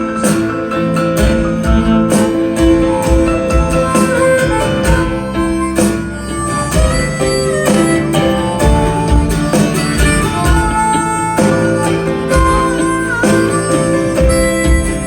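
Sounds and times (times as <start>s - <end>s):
bass beat: 0.0s - 15.0s
harmonica or fiddle lead line: 0.0s - 15.0s
strummed guitars: 0.0s - 15.0s.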